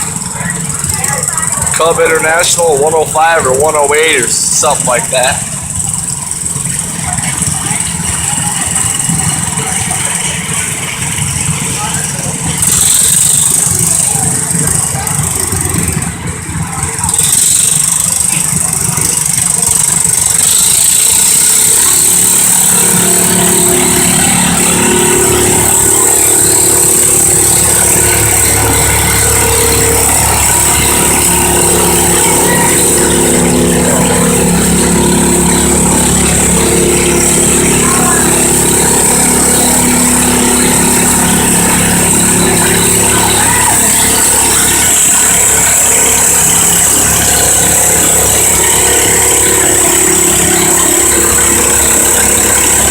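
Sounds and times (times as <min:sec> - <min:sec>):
tractor engine at high revs: 0:00.0 - 0:52.9.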